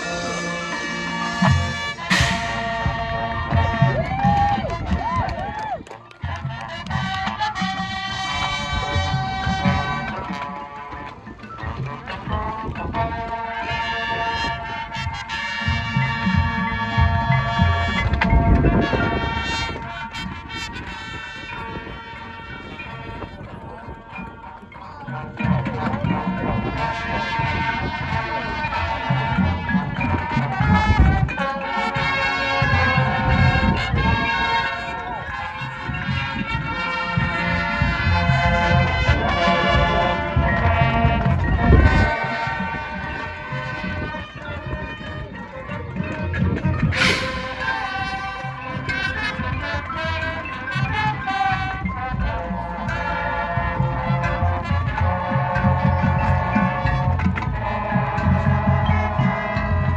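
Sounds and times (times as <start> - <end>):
brass chords: 0.0 - 4.4, 6.2 - 24.2, 25.3 - 46.1, 46.8 - 59.9
marching band playing: 0.0 - 5.2, 6.0 - 23.5, 25.4 - 45.0, 46.8 - 59.9
drum hits: 1.4 - 4.0, 47.0 - 48.2.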